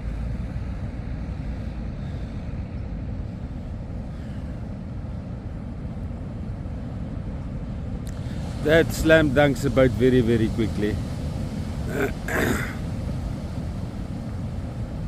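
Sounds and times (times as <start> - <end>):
ocean surf breaking: 7.9 - 15.0.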